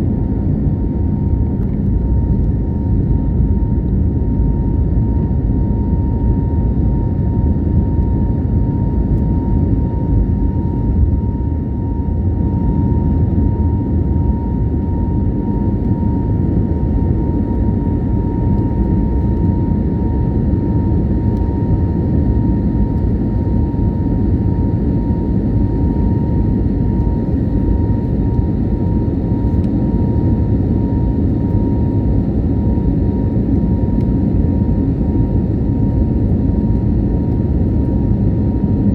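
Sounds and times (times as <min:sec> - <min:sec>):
jet engine rumble: 0:00.0 - 0:38.9.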